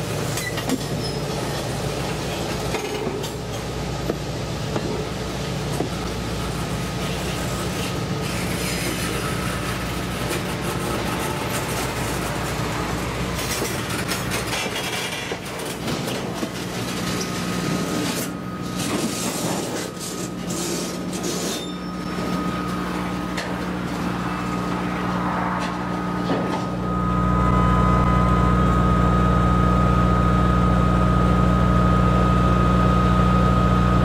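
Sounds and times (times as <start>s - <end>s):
steel wheels clanking over rail: 0.1s - 5.1s, 5.7s - 26.8s
thin wheel squeal: 0.3s - 1.8s, 6.5s - 27.8s.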